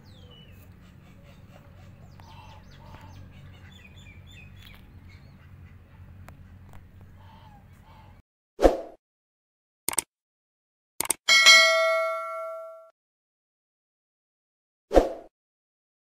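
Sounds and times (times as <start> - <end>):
birds chirping: 0.0 - 8.2
low background hum: 0.0 - 8.2.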